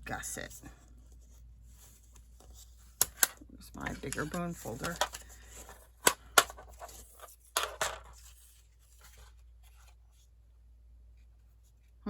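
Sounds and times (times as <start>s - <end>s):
paper rubbing and handling: 3.8s - 6.0s, 6.6s - 10.4s
crackly scrapes of folding card: 6.6s - 10.4s.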